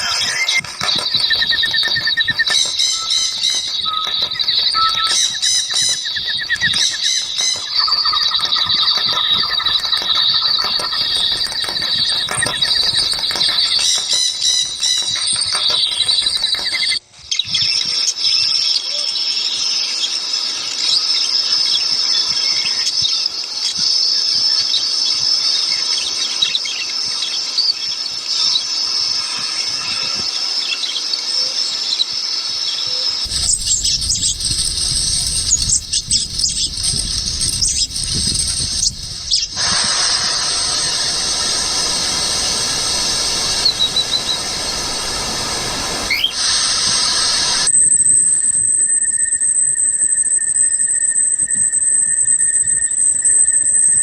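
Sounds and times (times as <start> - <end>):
high insect chorus: 0.0 - 17.0, 19.0 - 54.0
forest birds calling: 0.0 - 17.8, 32.6 - 47.7.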